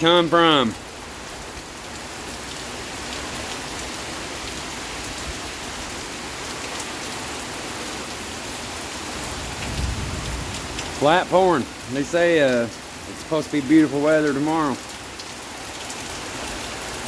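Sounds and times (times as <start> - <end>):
heavy rain pouring: 0.0 - 17.0
raindrops ticking: 0.0 - 17.0.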